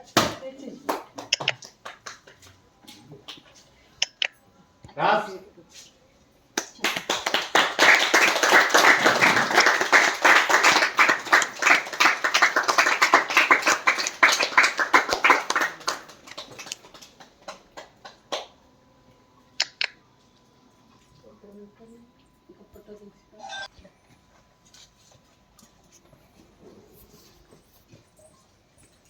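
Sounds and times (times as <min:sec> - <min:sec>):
group applauding: 0:00.9 - 0:02.5, 0:06.6 - 0:18.6.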